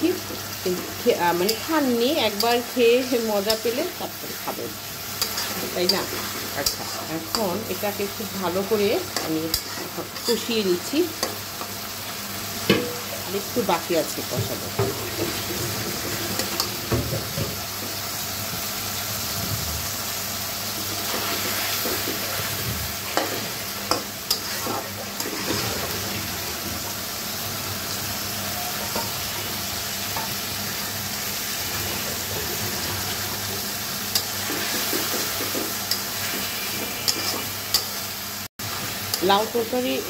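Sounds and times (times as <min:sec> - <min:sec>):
meat sizzling in a pan: 0:00.0 - 0:40.0
spatula scraping and tapping pan: 0:34.2 - 0:37.9.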